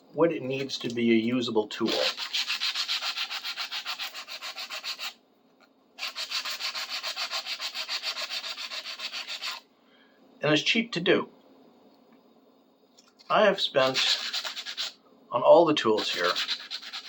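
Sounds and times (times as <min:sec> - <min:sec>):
sandpaper rubbing metal: 0:01.8 - 0:05.2, 0:06.0 - 0:09.6, 0:13.8 - 0:15.0, 0:16.0 - 0:17.0.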